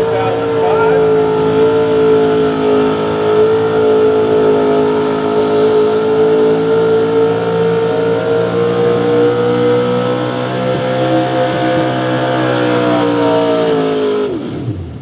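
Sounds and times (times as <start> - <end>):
truck engine revving under load: 0.0 - 15.0.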